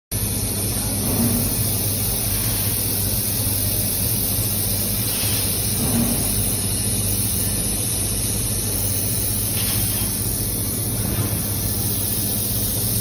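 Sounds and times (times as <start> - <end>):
welding equipment hum and hiss: 0.1 - 13.0.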